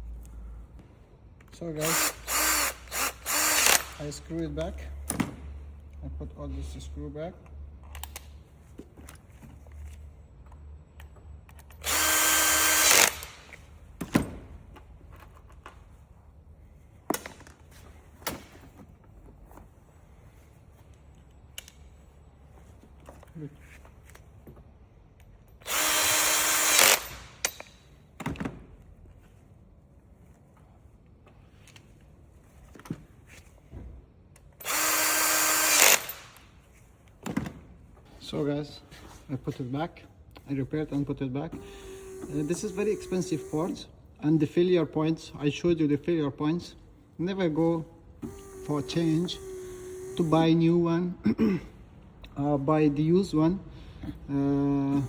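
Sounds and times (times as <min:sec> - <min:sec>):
power screwdriver running: 0:01.8 - 0:04.0, 0:11.8 - 0:13.4, 0:25.6 - 0:27.4, 0:34.6 - 0:36.4, 0:41.6 - 0:43.9, 0:48.2 - 0:50.6
parts clicking and knocking: 0:26.5 - 0:28.8.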